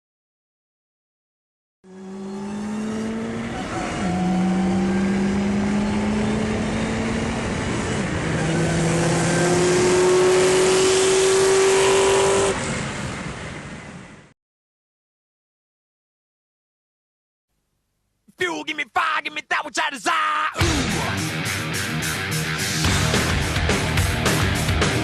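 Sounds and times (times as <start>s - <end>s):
car engine accelerating: 1.9s - 14.3s.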